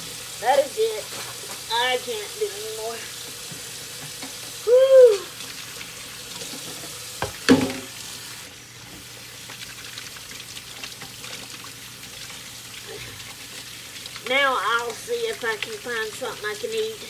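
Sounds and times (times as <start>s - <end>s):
tap running into sink: 3.3s - 5.6s, 6.2s - 9.6s
dish clattering: 6.4s - 8.0s.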